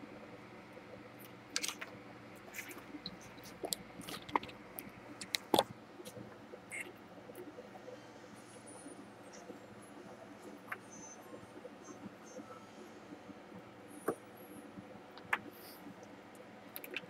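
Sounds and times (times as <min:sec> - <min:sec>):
faint steady hum: 0:00.0 - 0:17.0
small parts clicking and tapping: 0:01.2 - 0:01.9.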